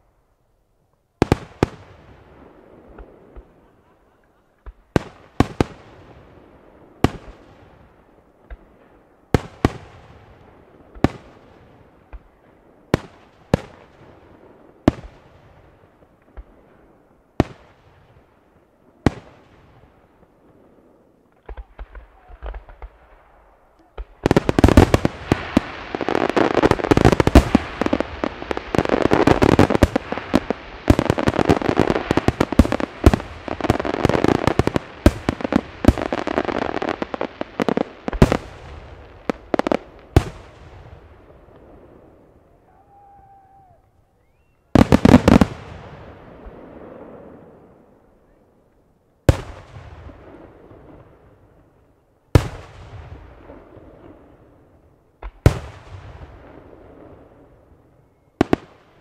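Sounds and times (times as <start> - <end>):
firework crackling: 1.2 - 47.9.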